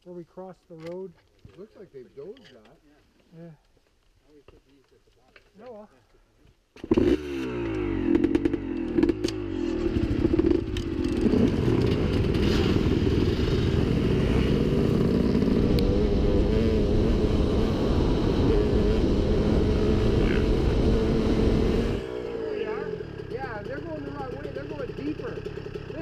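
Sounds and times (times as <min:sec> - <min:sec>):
dirt bike engine revving: 0:06.8 - 0:26.0.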